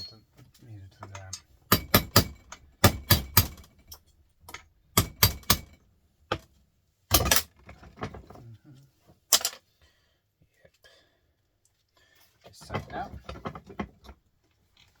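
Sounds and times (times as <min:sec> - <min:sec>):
small hammer striking metal: 0:01.2 - 0:06.5, 0:07.1 - 0:07.5.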